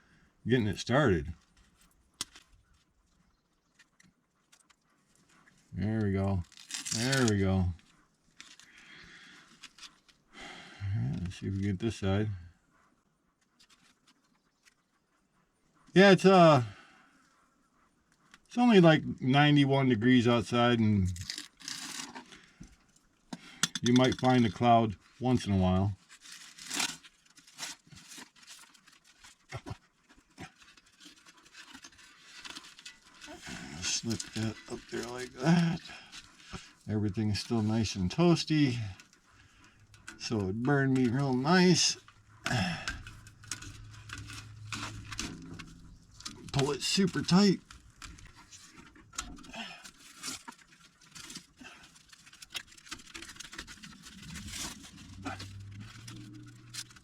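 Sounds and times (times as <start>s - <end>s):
wrap crinkling and scratching: 0.6s - 10.3s, 13.4s - 15.0s, 20.9s - 23.2s, 23.8s - 57.0s
light rustles and small knocks: 26.0s - 37.9s, 38.9s - 57.0s
low steady hum: 38.7s - 49.2s, 54.0s - 57.0s.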